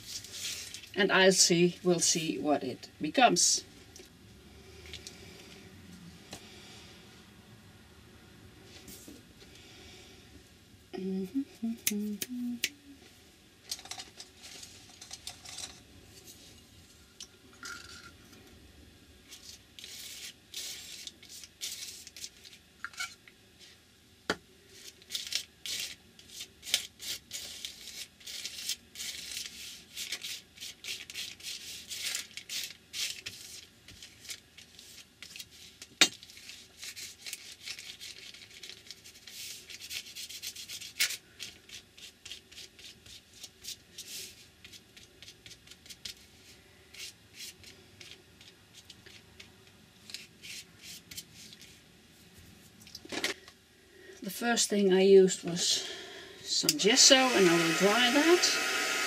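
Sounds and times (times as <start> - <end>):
brush strokes on paper: 50.2 - 52.7.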